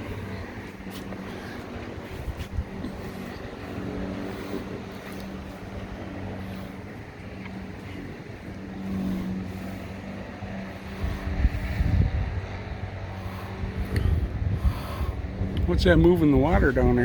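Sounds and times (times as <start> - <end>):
distant engine drone: 0.0 - 17.0
wind on microphone: 0.0 - 17.0.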